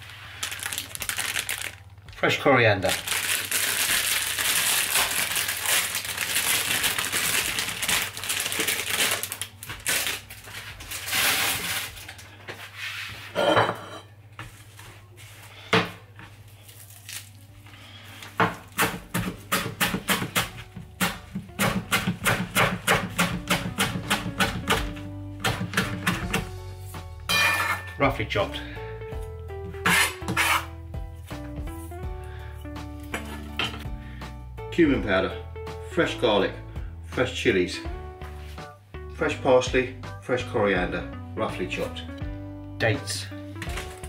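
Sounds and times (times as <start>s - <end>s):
plastic bag crinkling: 0.0s - 12.4s, 16.6s - 17.6s
knife chopping on chopping board: 18.4s - 26.5s.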